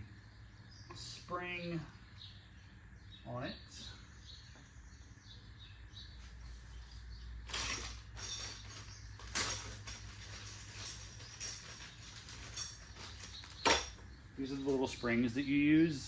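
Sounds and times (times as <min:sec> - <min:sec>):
metal parts scraping and clinking: 0:07.4 - 0:14.7.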